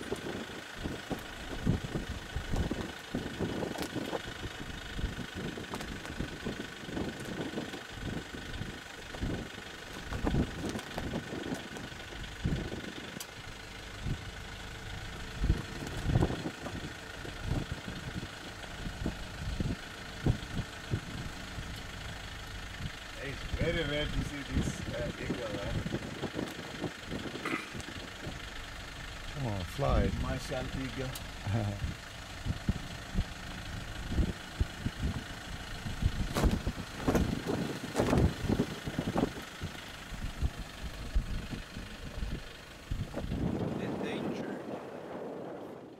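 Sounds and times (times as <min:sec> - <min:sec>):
dull low thumps: 0:00.0 - 0:12.9, 0:13.8 - 0:28.5, 0:31.2 - 0:43.9
vehicle engine idling: 0:00.0 - 0:45.9.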